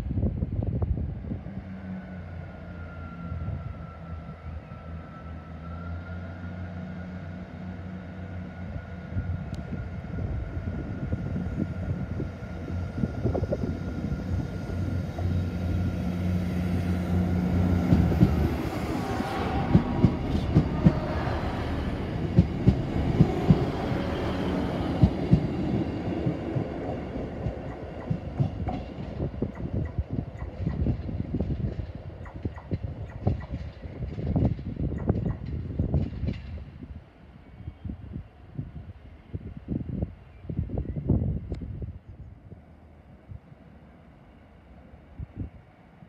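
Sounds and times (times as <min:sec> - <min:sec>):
diesel train engine droning: 0:01.4 - 0:30.2
train wheels clicking over rail joints: 0:22.2 - 0:36.7.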